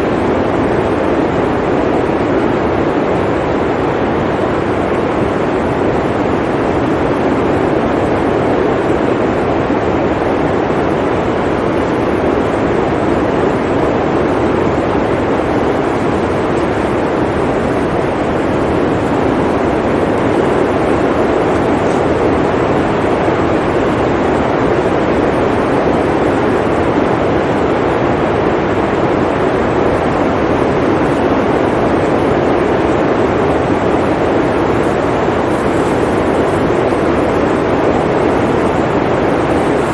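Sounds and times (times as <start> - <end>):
blizzard wind blowing: 0.0 - 39.9.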